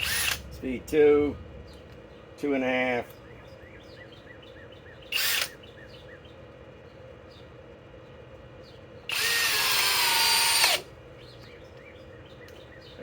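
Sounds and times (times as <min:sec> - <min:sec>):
drill driving a screw: 0:00.0 - 0:00.4, 0:05.2 - 0:05.6, 0:09.1 - 0:10.9
hammer drill motor whine: 0:00.0 - 0:00.4, 0:05.1 - 0:05.6, 0:09.1 - 0:10.9.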